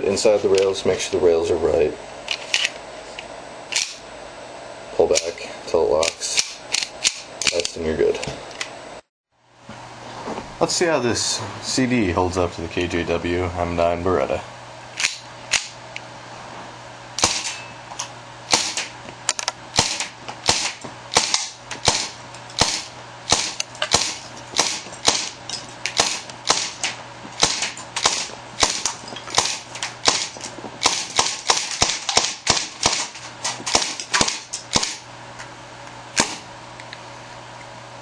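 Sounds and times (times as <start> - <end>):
airsoft pistol shots: 17.2 - 17.6, 18.5 - 18.9, 19.8 - 25.4, 26.0 - 35.0, 36.2 - 36.4.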